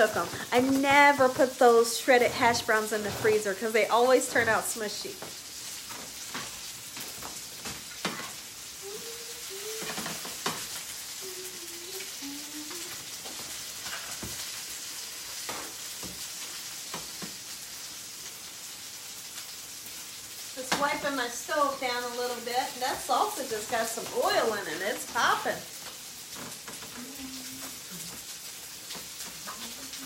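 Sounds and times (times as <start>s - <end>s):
utensil knocking and scraping pans: 0.0s - 8.4s
meat sizzling in oil: 0.0s - 30.0s.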